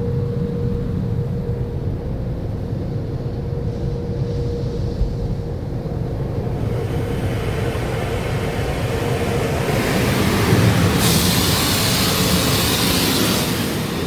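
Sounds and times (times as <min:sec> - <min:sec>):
low machinery rumble: 0:00.0 - 0:14.0
motor whine: 0:06.6 - 0:14.0
water spray hiss: 0:06.6 - 0:14.0.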